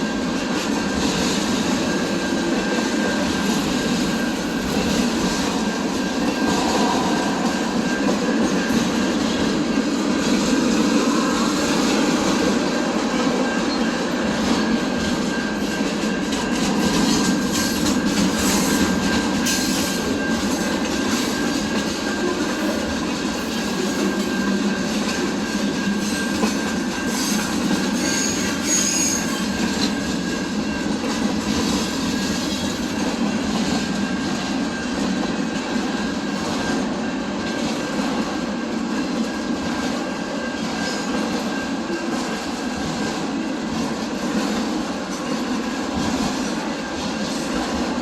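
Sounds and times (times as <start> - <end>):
train wheels rumbling on rails: 0.0 - 48.0
high-pitched wheel squeals: 26.0 - 29.9.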